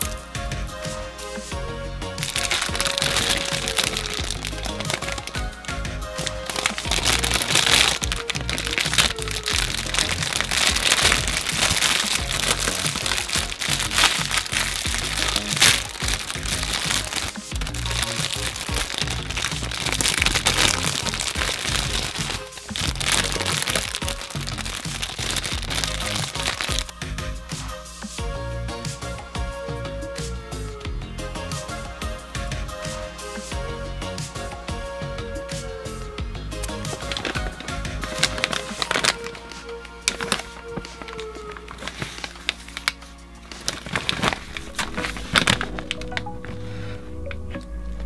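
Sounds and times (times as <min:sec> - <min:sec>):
background music: 0:00.0 - 0:48.0
crackling and crinkling: 0:02.2 - 0:27.8, 0:36.6 - 0:48.0.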